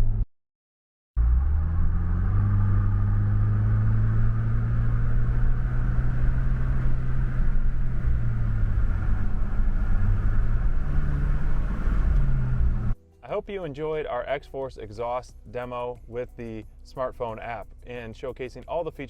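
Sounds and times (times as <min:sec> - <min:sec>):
engine low exhaust note: 0:01.2 - 0:13.0.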